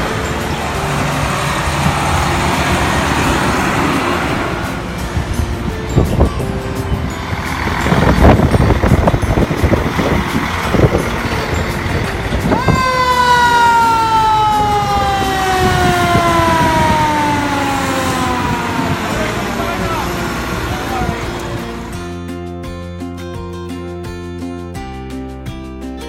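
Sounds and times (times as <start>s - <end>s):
fire truck siren: 0.0s - 5.8s, 7.1s - 22.0s
heavy truck engine rumbling: 0.0s - 24.8s.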